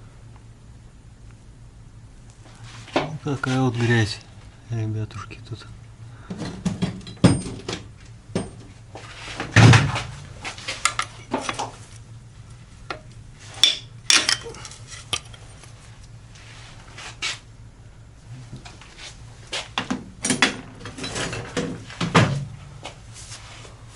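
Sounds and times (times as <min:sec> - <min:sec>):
metal tools clinking: 0:13.6 - 0:15.4.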